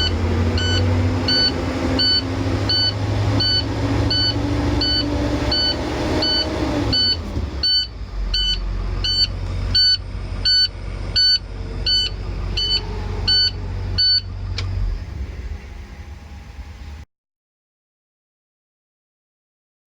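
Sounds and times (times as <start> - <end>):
electronic beeper: 0.0 - 14.3
diesel engine rumbling: 0.0 - 17.1.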